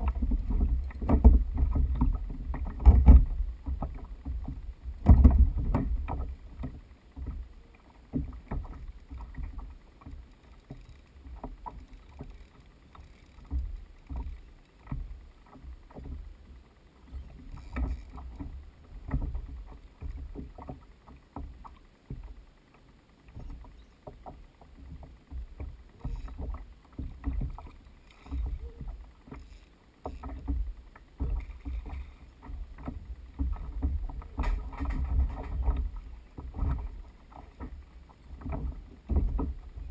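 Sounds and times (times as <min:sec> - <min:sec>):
small clicks: 0:00.0 - 0:39.8
water sloshing against hull: 0:00.0 - 0:39.9.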